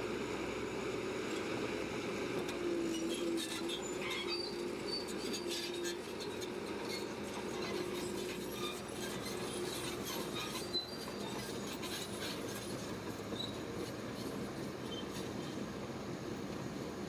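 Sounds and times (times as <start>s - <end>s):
bulldozer running: 0.0s - 17.0s
steel tracks squeaking and clinking: 2.8s - 15.8s.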